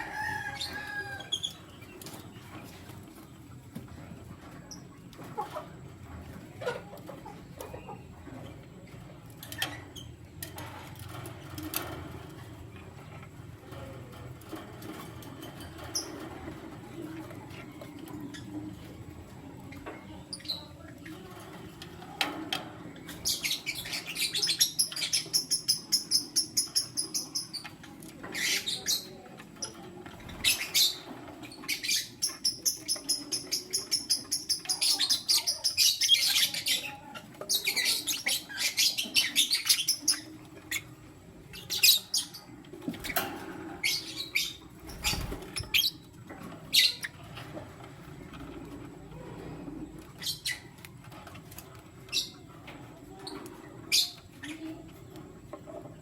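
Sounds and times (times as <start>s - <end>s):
lovebirds chirping: 23.0s - 43.2s.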